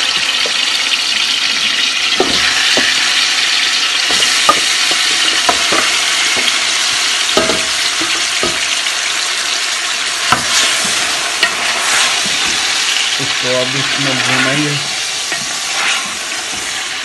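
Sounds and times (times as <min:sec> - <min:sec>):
chicken sizzling in hot oil: 0:00.0 - 0:17.0
spatula scraping a metal pot: 0:10.3 - 0:12.9, 0:14.2 - 0:16.9.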